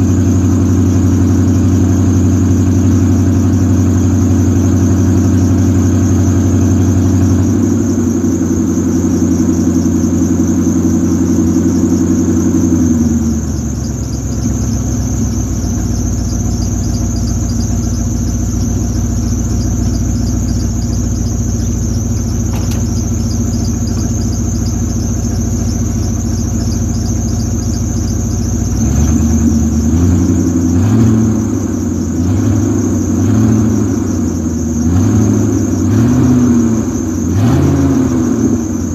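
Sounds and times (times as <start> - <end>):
car engine idling and revving: 0.0 - 38.9
high-pitched whine: 0.0 - 38.9.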